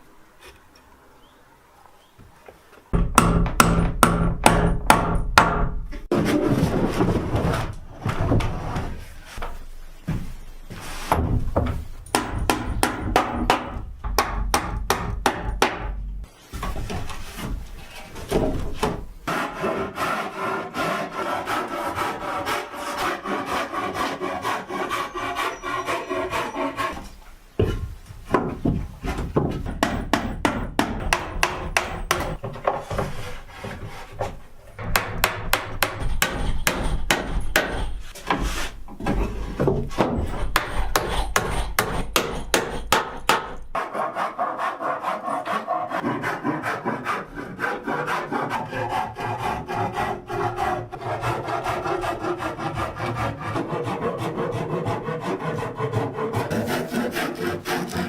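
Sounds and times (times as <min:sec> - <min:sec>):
rapid knocks on wood: 0:27.6 - 0:33.2.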